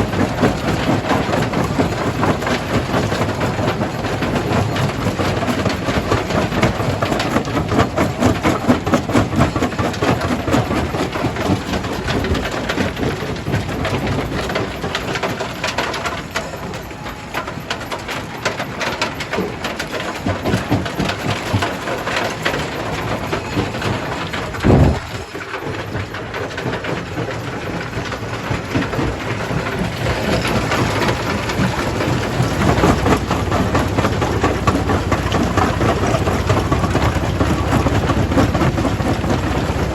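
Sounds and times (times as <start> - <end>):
rock crusher clattering stones: 0.0 - 39.9
low machine rumble: 20.0 - 39.9.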